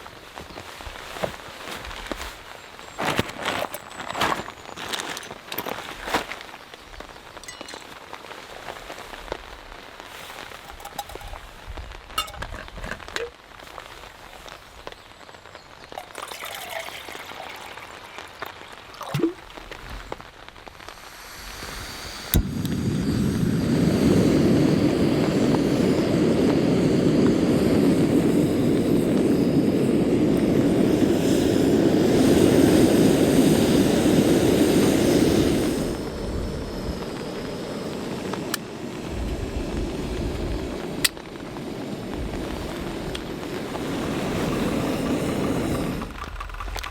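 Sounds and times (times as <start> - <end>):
rain pattering: 0.0 - 21.6, 35.9 - 46.9
thunder crack and rumble: 39.0 - 46.9.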